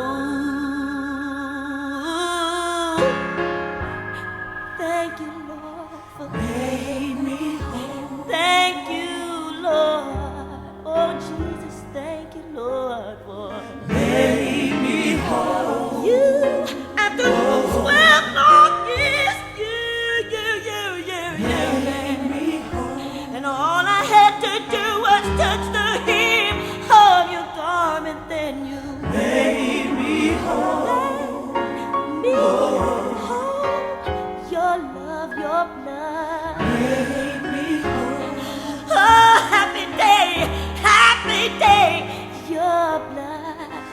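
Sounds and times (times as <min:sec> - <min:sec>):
gospel choir singing: 0:00.0 - 0:43.9
sustained instrumental chords: 0:03.0 - 0:09.4, 0:24.7 - 0:41.3.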